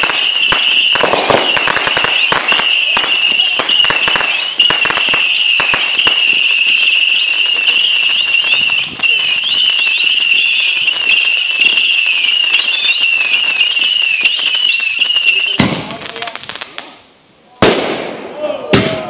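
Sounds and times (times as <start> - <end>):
whistling fireworks: 0.0 - 17.0.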